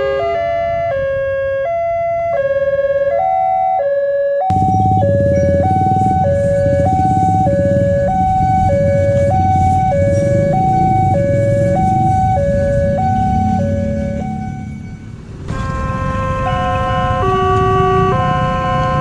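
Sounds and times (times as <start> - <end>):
two-tone crossing alarm: 0.0 - 19.0
steady low rumble: 4.5 - 15.6.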